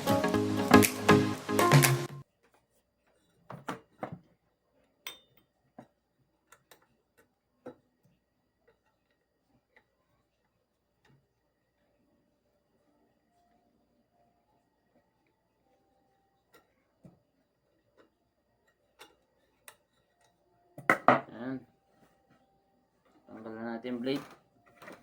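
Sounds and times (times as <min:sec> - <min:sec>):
background music: 0:00.0 - 0:02.2.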